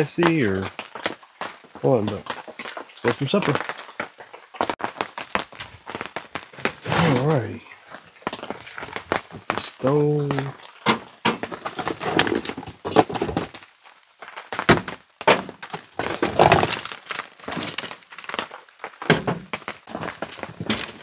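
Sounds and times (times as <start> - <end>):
hard objects knocking and clattering: 10.4 - 13.6, 14.6 - 21.0.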